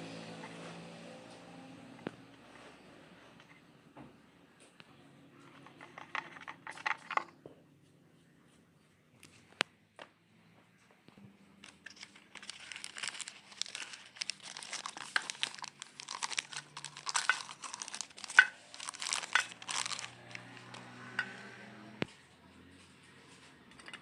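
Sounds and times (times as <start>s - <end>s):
crinkling and crumpling: 5.4s - 7.4s, 10.8s - 24.0s.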